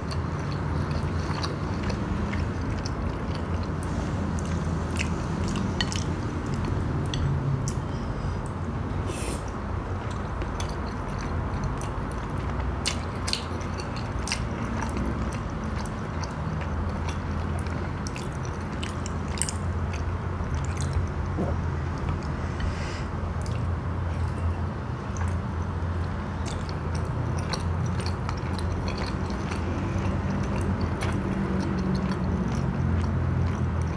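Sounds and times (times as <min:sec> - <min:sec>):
chewing: 0:00.0 - 0:08.6, 0:09.4 - 0:33.9
steady low rumble: 0:14.0 - 0:33.9.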